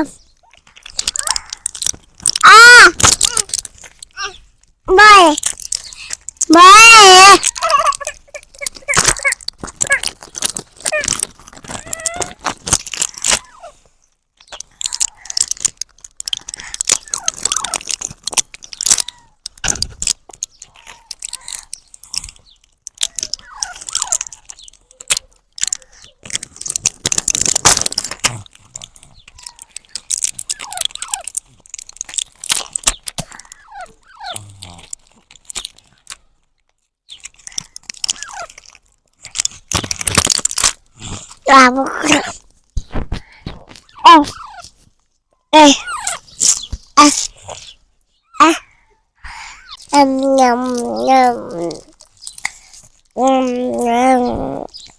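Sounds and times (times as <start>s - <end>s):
parrot clicking and smacking: 0.0s - 44.9s, 49.3s - 53.4s.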